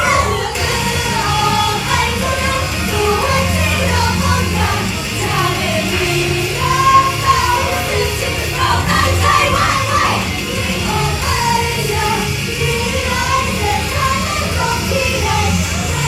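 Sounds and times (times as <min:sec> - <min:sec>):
pop song with high female vocal: 0:00.0 - 0:16.0.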